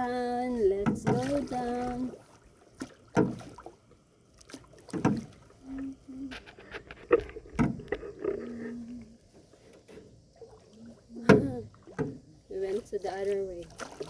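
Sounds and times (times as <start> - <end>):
paddles dipping in water: 0.0 - 14.0
paddle knocking on canoe hull: 0.7 - 1.8, 3.1 - 3.5, 4.9 - 5.3, 11.2 - 12.2.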